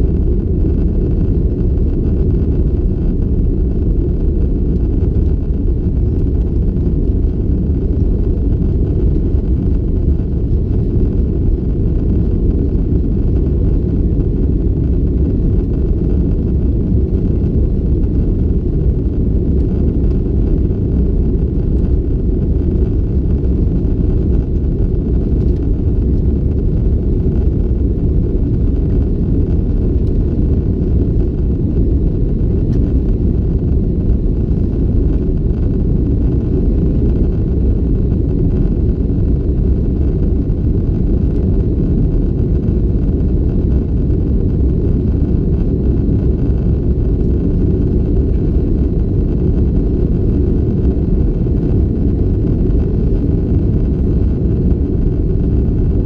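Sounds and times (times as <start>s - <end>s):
airplane cabin rumble in flight: 0.0s - 56.0s.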